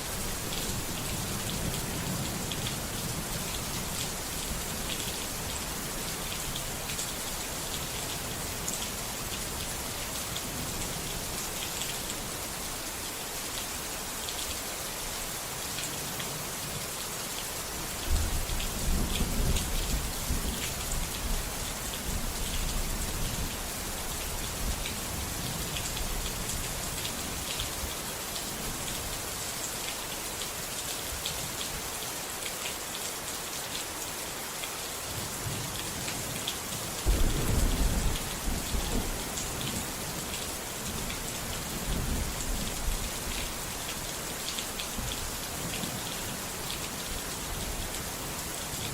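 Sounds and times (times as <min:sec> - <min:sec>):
rain patter: 0:00.0 - 0:48.9
low rolls of thunder: 0:37.0 - 0:39.8.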